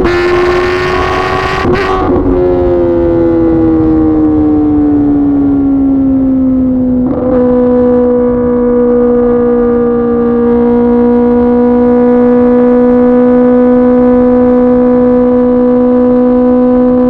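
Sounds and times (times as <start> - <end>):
motorcycle engine slowing: 0.0 - 13.1.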